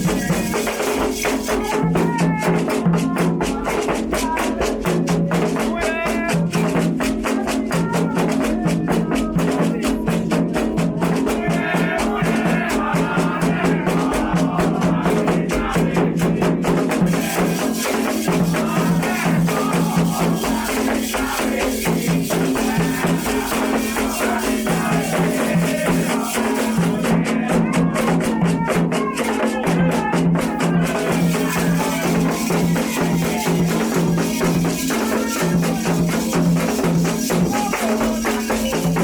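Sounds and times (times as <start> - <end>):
hand drums: 0.0 - 39.0
rattles shaking: 17.0 - 27.1, 30.6 - 39.0.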